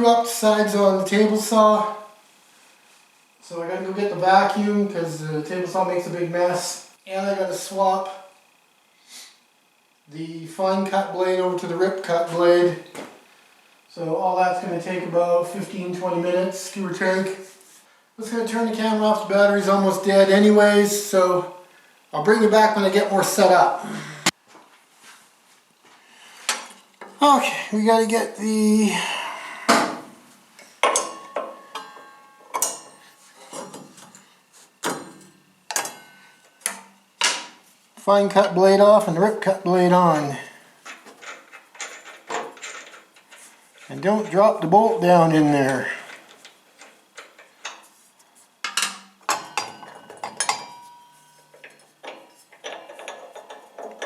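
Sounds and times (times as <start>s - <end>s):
metal tools clinking on metal: 30.8s - 34.2s, 40.8s - 44.6s, 48.6s - 54.0s.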